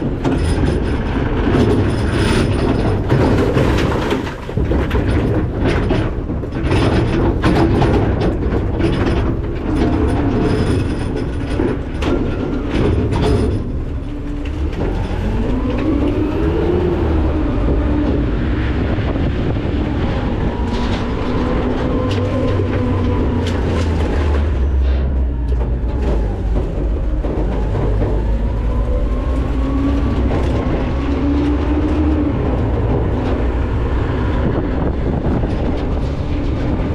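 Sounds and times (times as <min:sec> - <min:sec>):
metal clanks and rattles: 0:00.0 - 0:36.9
truck engine rumble: 0:00.0 - 0:36.9
hydraulic whine: 0:09.6 - 0:36.9.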